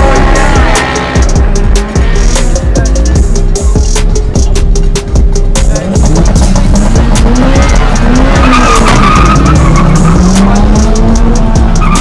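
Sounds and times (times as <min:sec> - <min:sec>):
racing car engine running hard: 0:00.0 - 0:12.0
tyres squealing: 0:07.6 - 0:12.0.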